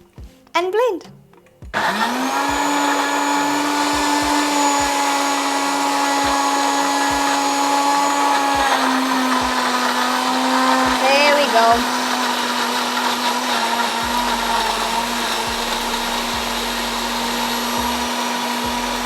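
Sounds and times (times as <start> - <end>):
blender motor running: 1.8 - 19.0.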